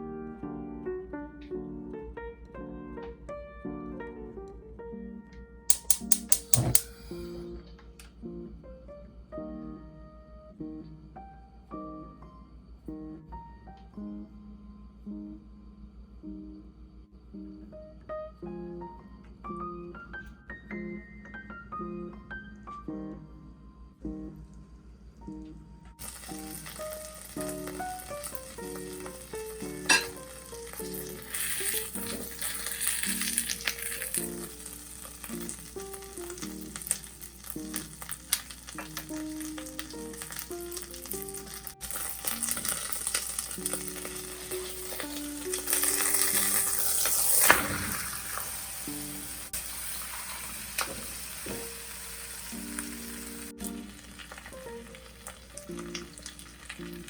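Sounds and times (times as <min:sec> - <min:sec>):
light background music: 0:00.0 - 0:57.0
food sizzling in a pan: 0:05.7 - 0:07.4, 0:26.0 - 0:57.0
pan knock: 0:29.9 - 0:30.2.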